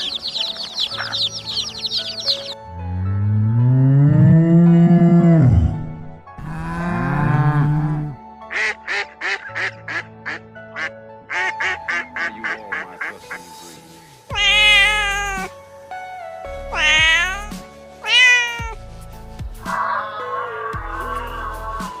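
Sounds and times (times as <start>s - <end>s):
background music: 0.0s - 22.0s
duck quacking rapidly: 8.5s - 13.4s, 14.4s - 15.5s.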